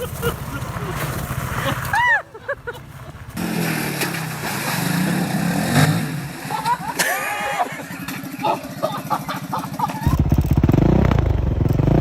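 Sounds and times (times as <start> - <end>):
small motorcycle engine revving: 3.4 - 12.0.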